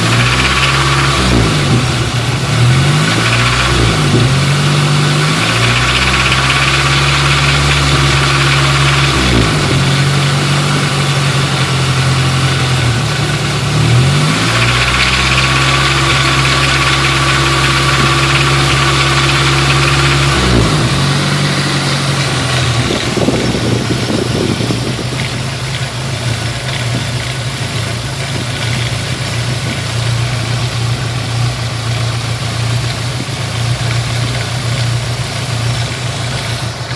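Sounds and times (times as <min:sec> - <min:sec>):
car engine revving: 0:00.0 - 0:36.9
engine rattle: 0:00.0 - 0:36.9.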